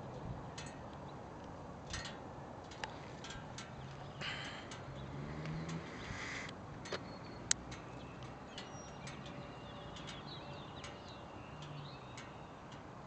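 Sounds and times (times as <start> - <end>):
small birds chirping: 2.8 - 13.0.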